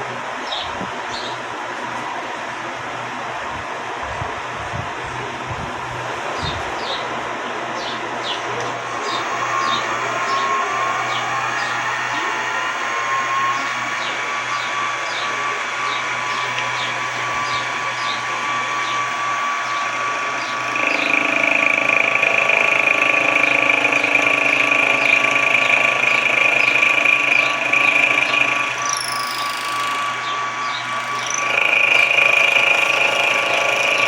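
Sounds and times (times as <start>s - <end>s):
milling machine running: 8.0s - 34.0s
high whine: 8.8s - 34.0s.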